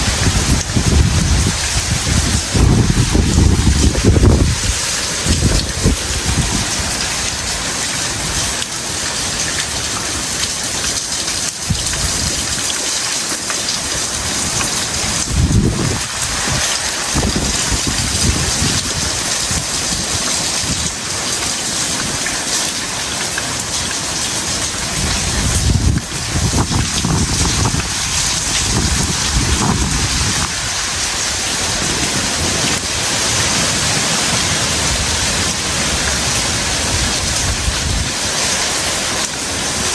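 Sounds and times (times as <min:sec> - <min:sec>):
wind surges: 0:00.0 - 0:08.6, 0:14.1 - 0:20.9, 0:24.8 - 0:39.9
heavy rain pouring: 0:00.0 - 0:39.9.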